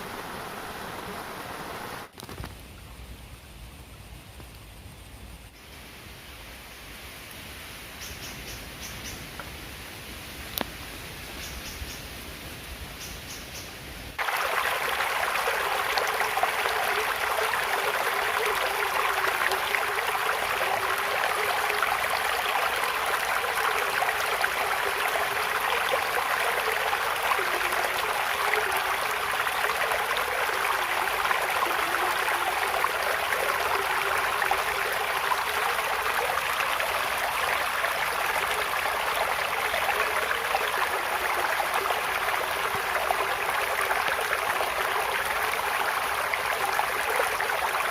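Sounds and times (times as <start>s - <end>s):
stream water rushing and splashing: 0.0s - 2.1s, 14.1s - 47.9s.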